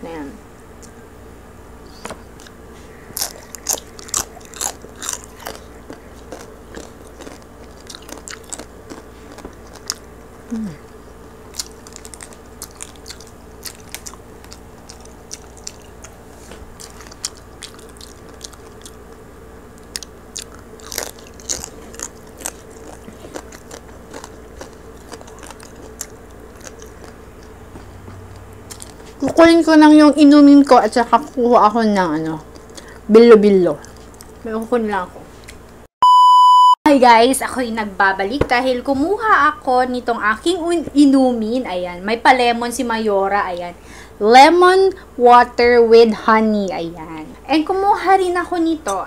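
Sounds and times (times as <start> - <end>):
steady low hum: 0.0 - 49.0
crunching crispy pig skin: 2.3 - 29.3, 32.4 - 33.0.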